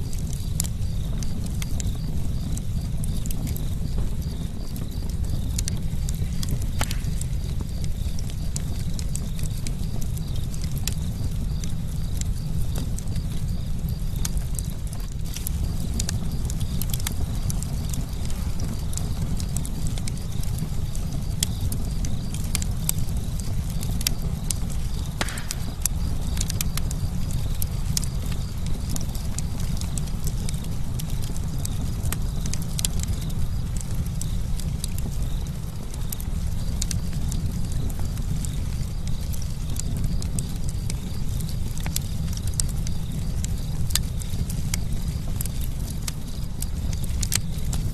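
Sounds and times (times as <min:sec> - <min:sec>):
campfire crackling: 0:00.0 - 0:47.9.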